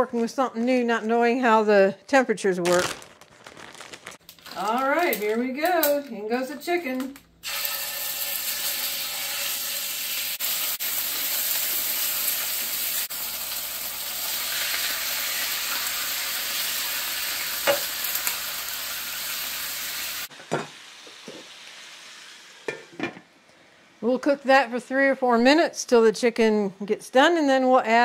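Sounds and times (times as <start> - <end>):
chicken sizzling in oil: 7.4 - 23.0.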